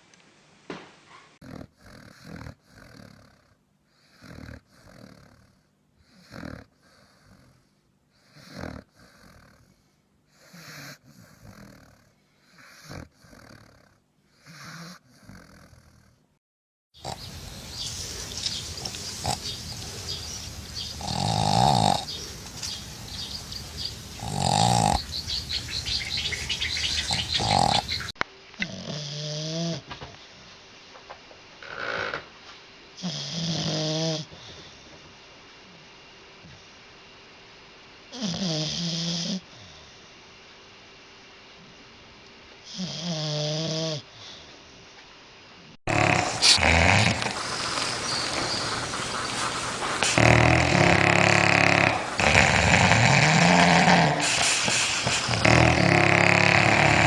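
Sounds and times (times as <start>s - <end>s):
dogs snoring: 1.4s - 16.2s, 17.0s - 29.9s, 33.0s - 34.4s, 38.1s - 39.7s, 42.7s - 44.1s, 45.9s - 57.0s
steady background noise: 17.0s - 28.6s.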